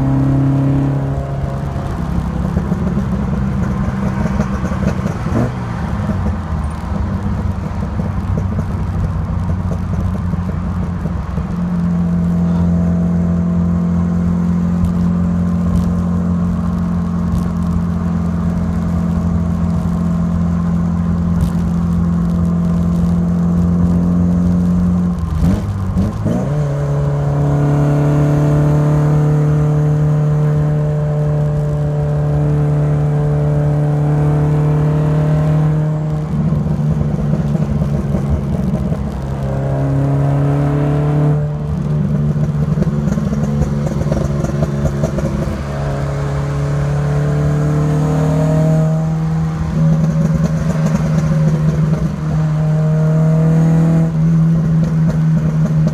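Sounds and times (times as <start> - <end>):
car engine running: 0.0 - 55.9.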